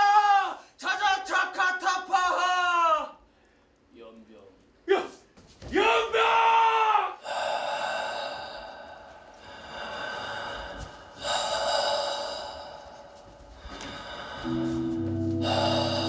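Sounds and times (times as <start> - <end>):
heavy slow breathing: 7.2 - 16.0
low music tones: 14.4 - 16.0.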